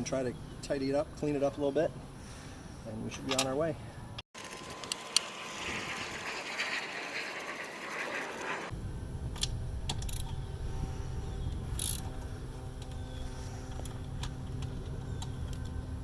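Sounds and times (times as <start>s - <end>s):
low hum: 3.9s - 16.0s
ratchet wrench clicking: 11.8s - 12.0s.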